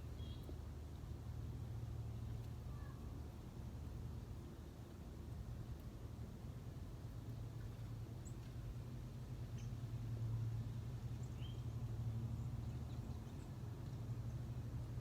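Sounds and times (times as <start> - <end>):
steady low hum: 0.0 - 15.0
faint bird chirps: 2.7 - 3.0.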